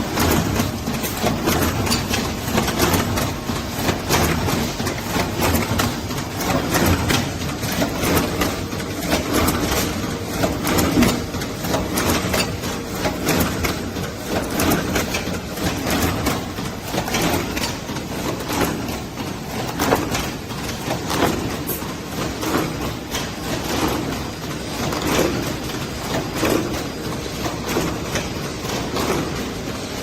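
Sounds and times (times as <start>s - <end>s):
packing machine clattering: 0.0s - 30.0s.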